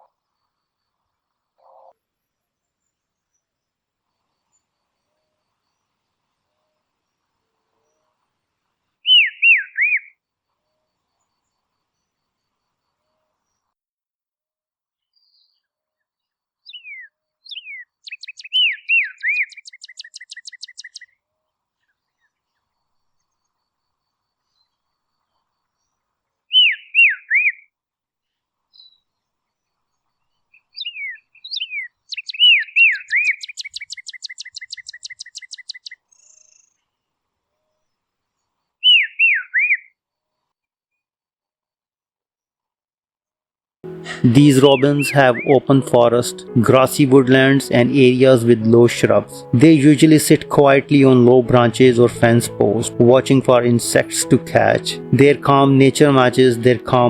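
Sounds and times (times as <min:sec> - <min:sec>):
songbird singing: 0:09.0 - 0:10.1, 0:16.6 - 0:21.0, 0:26.5 - 0:27.6, 0:30.5 - 0:36.8, 0:38.8 - 0:39.8, 0:43.9 - 0:57.0.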